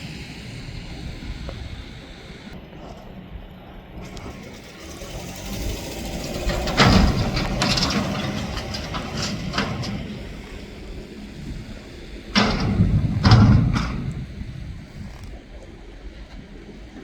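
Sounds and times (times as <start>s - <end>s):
garbage truck engine running: 0.0s - 17.0s
loud metal clank: 4.3s - 14.6s.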